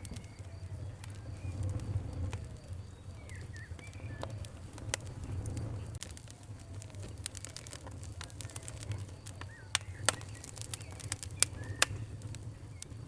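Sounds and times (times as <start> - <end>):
fire crackling and popping: 0.0 - 13.0
bird chirps: 2.6 - 4.5, 9.3 - 13.0.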